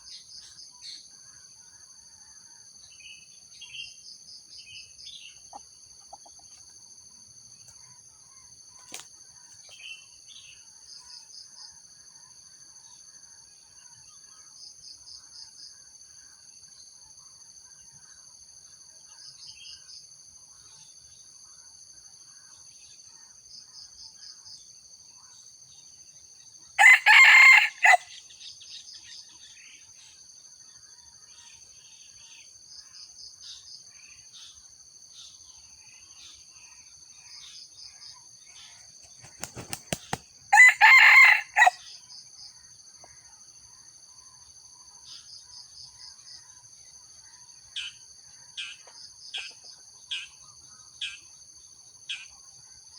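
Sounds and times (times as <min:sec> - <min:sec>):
pulsing insect trills: 0:26.4 - 0:48.8
rooster crowing: 0:26.8 - 0:28.1, 0:40.5 - 0:41.8
insects whining: 0:26.8 - 0:30.1, 0:35.2 - 0:42.6.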